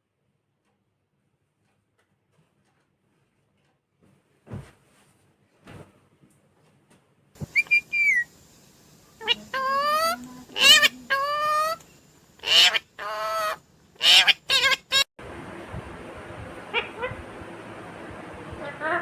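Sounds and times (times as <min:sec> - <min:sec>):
parakeet whistling and screeching: 0:07.4 - 0:08.3, 0:09.2 - 0:11.8, 0:12.4 - 0:15.1.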